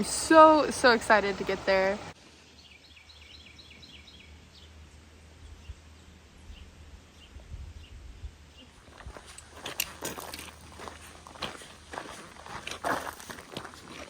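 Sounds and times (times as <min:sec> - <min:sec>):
bird chirping: 0:02.4 - 0:09.3.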